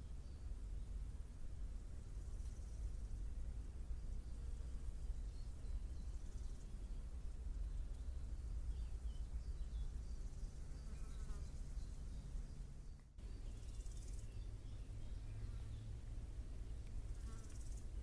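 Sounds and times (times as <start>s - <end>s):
faint bird chirps: 4.0s - 16.0s.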